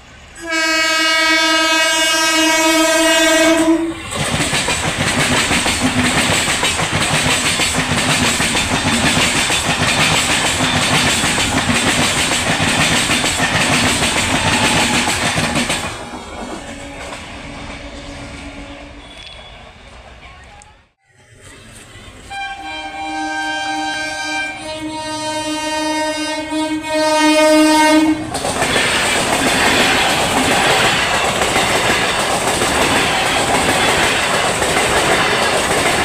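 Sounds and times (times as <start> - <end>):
train rushing past: 0.0 - 36.0
train horn blast: 0.4 - 4.0, 16.6 - 19.5, 22.2 - 28.3
wheel clatter over rails: 4.1 - 17.2, 28.3 - 36.0.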